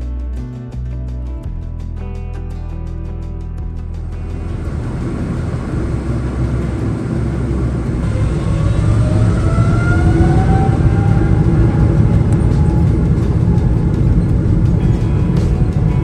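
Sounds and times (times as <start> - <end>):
jet engines spooling up: 4.1 - 16.0.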